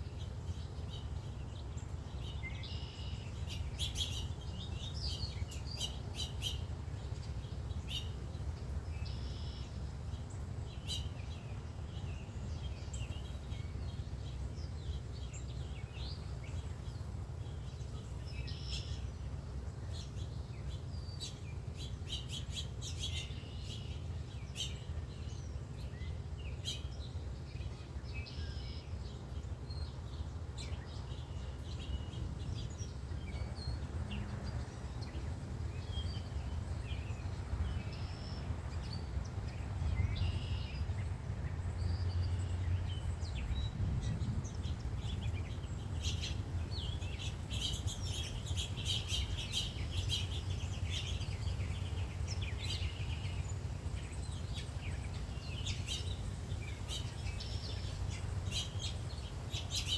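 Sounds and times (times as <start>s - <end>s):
songbirds chirping: 0.0s - 59.9s
steady low rumble: 28.8s - 59.8s.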